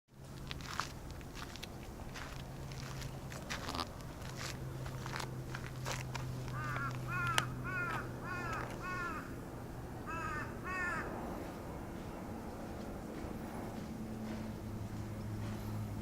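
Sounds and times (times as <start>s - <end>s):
crow cawing: 6.5s - 9.4s, 10.0s - 11.2s.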